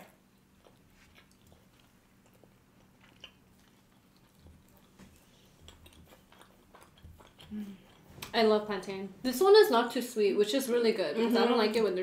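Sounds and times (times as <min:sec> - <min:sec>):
people chewing: 0:00.0 - 0:08.6.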